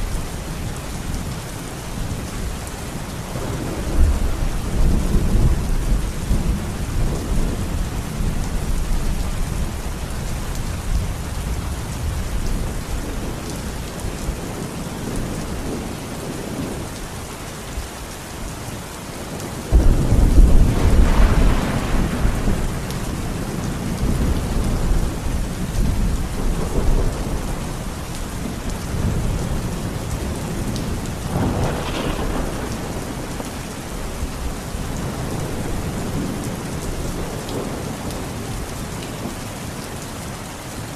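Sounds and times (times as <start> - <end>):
rain falling steadily: 0.0 - 40.9
thunder clap rumbling: 3.4 - 9.8, 19.4 - 39.3.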